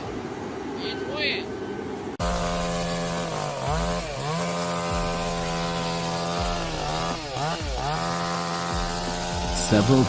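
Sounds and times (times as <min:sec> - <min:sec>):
chainsaw running at high revs: 0:02.2 - 0:10.0.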